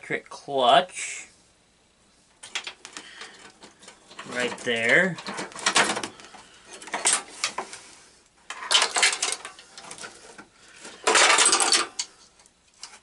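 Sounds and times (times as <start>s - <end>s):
metal tools clattering and scraping: 2.5s - 7.8s, 8.5s - 12.2s.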